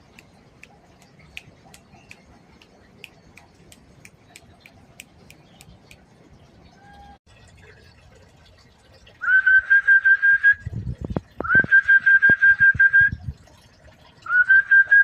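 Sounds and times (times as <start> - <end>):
person whistling a trill: 11.5 - 13.2.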